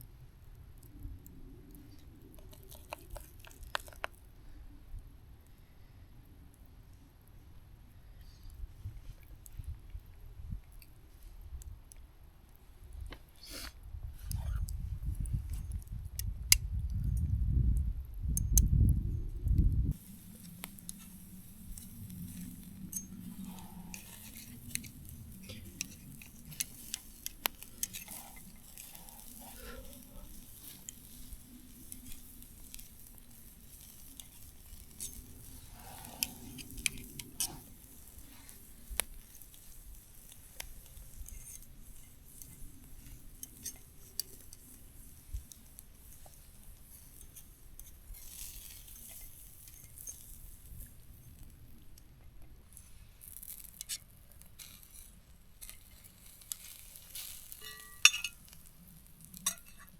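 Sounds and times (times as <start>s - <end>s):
faint sizzle: 19.5s - 59.9s
utensils clinking on cookware: 57.6s - 58.4s.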